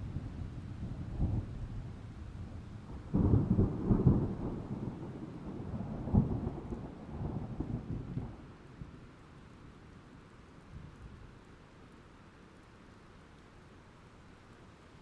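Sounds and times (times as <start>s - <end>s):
rain: 0.0s - 15.0s
thunder rumbling: 0.2s - 8.4s.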